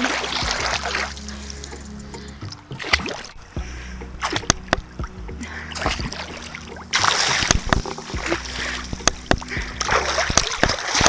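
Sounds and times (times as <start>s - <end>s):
low hum: 0.0s - 11.0s
water splashing from swimming: 0.0s - 11.0s.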